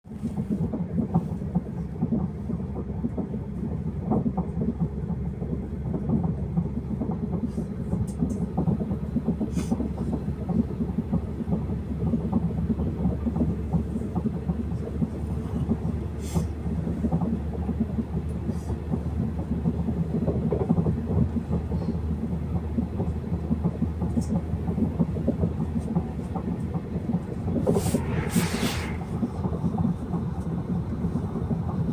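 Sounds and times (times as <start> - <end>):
train wheels rumbling on rail: 0.0 - 31.9.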